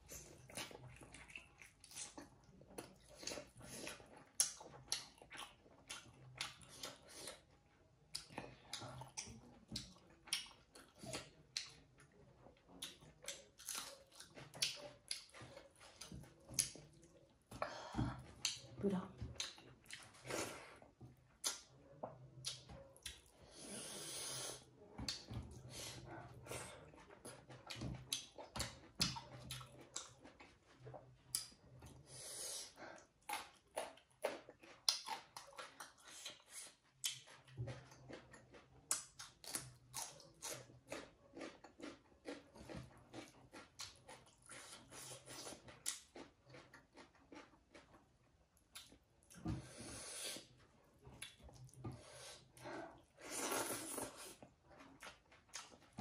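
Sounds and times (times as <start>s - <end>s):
wet chewing and lip smacks: 0.1s - 7.5s, 8.1s - 17.5s, 19.4s - 20.3s, 21.1s - 23.4s, 26.4s - 32.0s, 33.0s - 49.4s, 50.3s - 56.0s
breaths through the nose: 23.4s - 24.7s, 32.0s - 33.1s, 49.5s - 50.5s.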